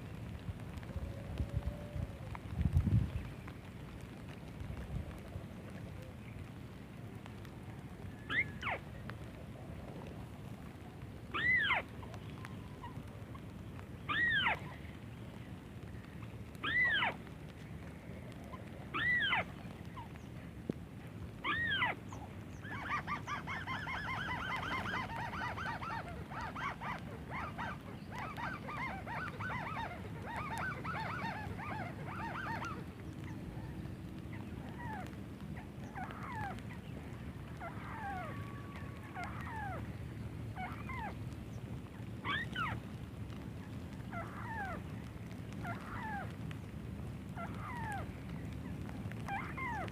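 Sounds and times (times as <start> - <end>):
bird nasal calls: 21.4 - 35.1.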